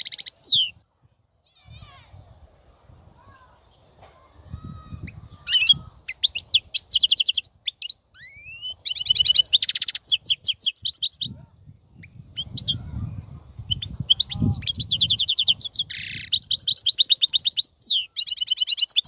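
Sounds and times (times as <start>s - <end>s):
goldfinch singing: 0.0s - 0.8s, 4.7s - 11.3s, 12.0s - 19.0s.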